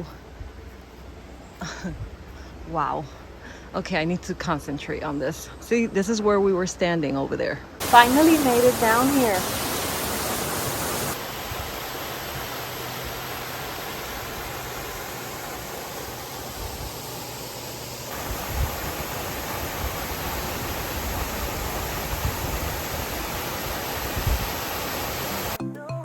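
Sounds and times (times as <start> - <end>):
waterfall rushing: 7.8 - 25.6.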